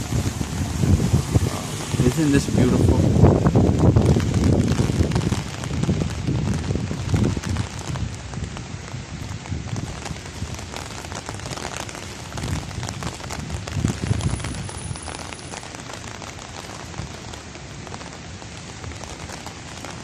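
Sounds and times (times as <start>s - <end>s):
low rumble: 0.0s - 7.3s
rain on an umbrella: 0.0s - 20.0s.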